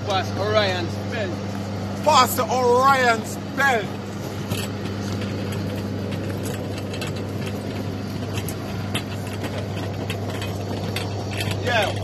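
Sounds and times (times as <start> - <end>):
jet engine drone: 0.0 - 12.0
cabin air rush: 0.2 - 12.0.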